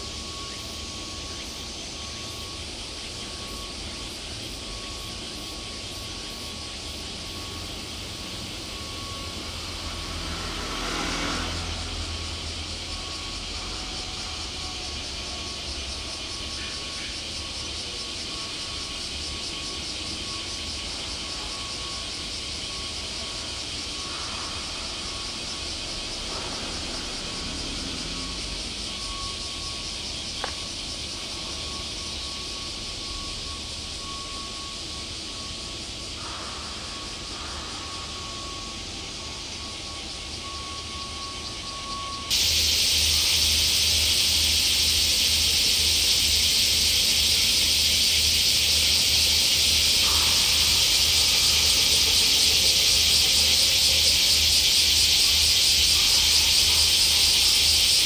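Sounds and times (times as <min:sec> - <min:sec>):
faint steady tone: 0:00.0 - 0:58.0
high even hiss: 0:42.3 - 0:58.0.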